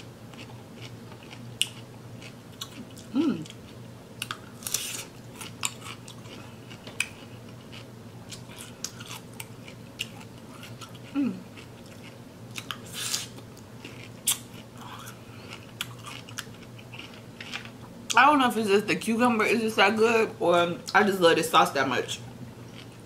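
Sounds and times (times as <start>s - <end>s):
crunching and chewing cucumber: 0.0s - 17.9s, 22.6s - 23.0s
closed-mouth hum: 0.0s - 21.2s.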